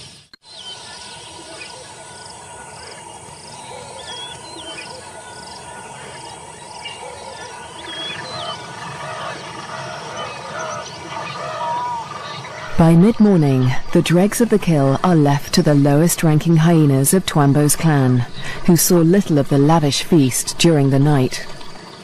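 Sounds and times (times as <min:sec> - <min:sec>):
whistled bird calls: 0:00.4 - 0:12.7
bird warbling: 0:00.6 - 0:14.0.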